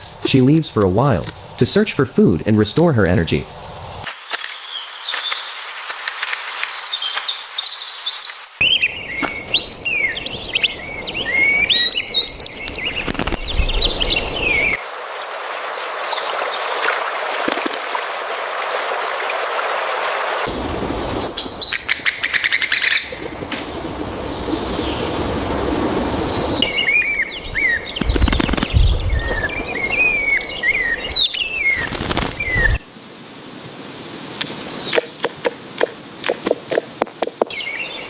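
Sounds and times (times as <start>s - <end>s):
outdoor background noise: 0.0s - 38.0s
birds chirping: 6.4s - 17.3s, 20.8s - 32.9s, 37.4s - 38.0s.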